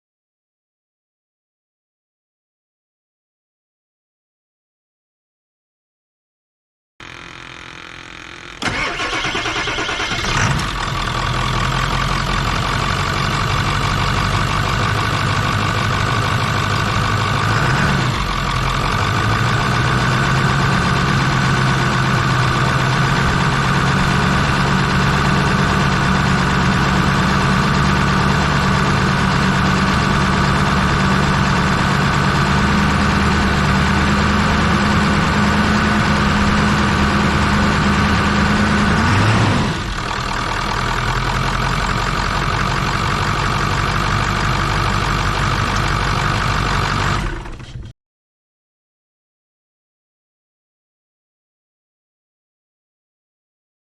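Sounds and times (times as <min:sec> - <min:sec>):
truck engine cranking and idling: 0:07.0 - 0:47.9.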